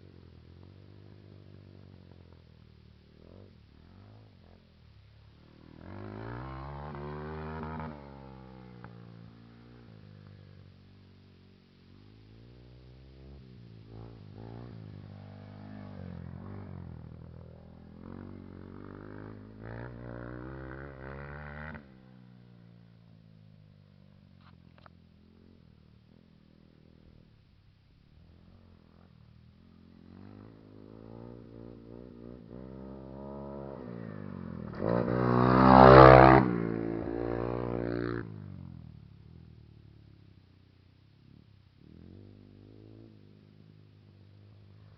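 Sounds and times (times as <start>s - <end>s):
dirt bike riding by: 0.0s - 27.4s, 28.1s - 39.6s
dirt bike engines revving: 28.4s - 38.5s.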